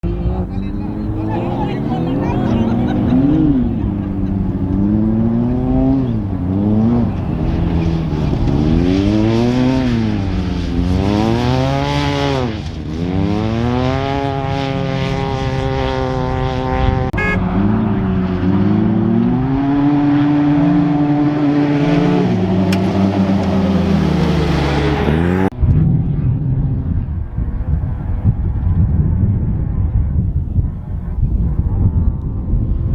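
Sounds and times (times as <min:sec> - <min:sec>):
race vehicle engine revving: 0:00.0 - 0:26.1.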